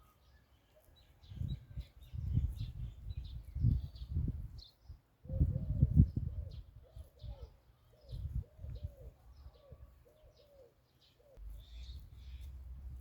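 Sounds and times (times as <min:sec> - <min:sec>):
bird cooing: 0:05.3 - 0:12.5
high bird chirps: 0:11.2 - 0:12.8
wind or handling rumble: 0:11.4 - 0:13.0.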